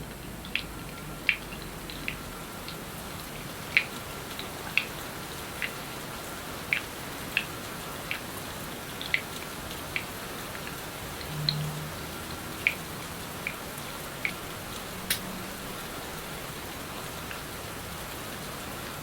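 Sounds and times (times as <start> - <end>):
rain hissing: 0.0 - 19.0
single raindrops landing: 12.6 - 16.0.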